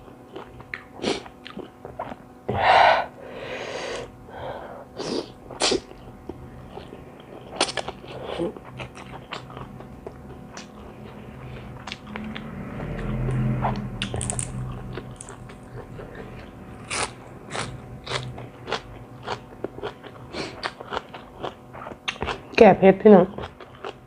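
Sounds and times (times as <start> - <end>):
loud burst of breath: 2.6 - 5.3
wet chewing: 5.5 - 22.4, 23.3 - 24.0.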